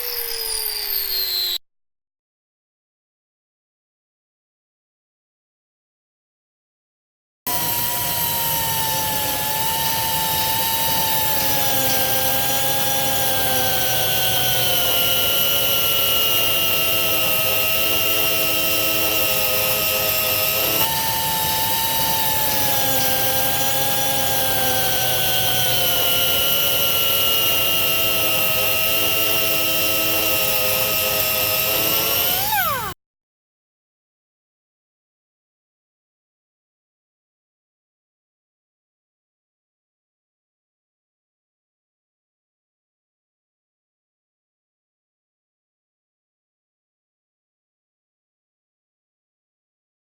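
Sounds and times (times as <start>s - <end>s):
angle grinder whining: 0.0s - 1.6s, 7.5s - 33.0s.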